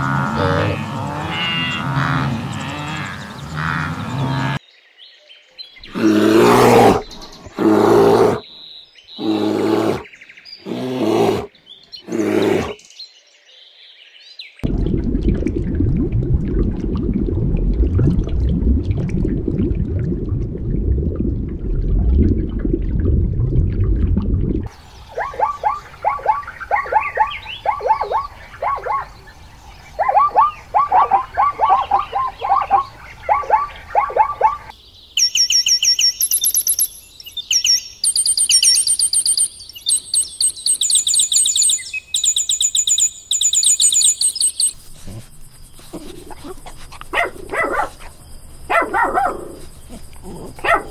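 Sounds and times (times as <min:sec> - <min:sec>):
low watery rumble: 0:14.6 - 0:24.9
high-pitched chirps: 0:35.2 - 0:45.2.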